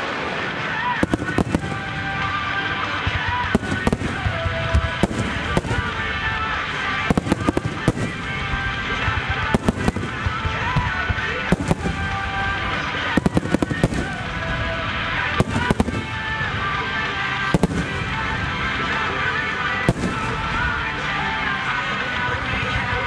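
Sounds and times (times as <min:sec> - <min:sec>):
music playing: 0:00.0 - 0:23.0
firework shells bursting: 0:00.9 - 0:16.3.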